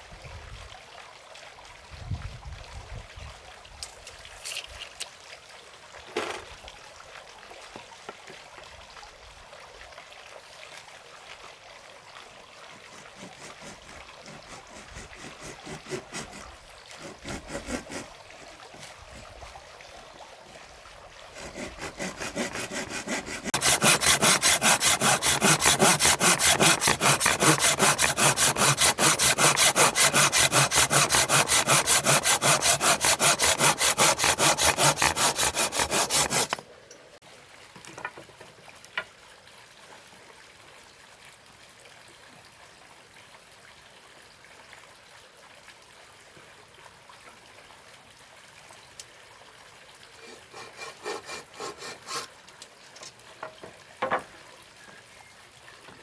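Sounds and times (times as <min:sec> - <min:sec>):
hand saw cutting wood: 0:12.7 - 0:19.2, 0:21.3 - 0:36.6, 0:50.2 - 0:52.4.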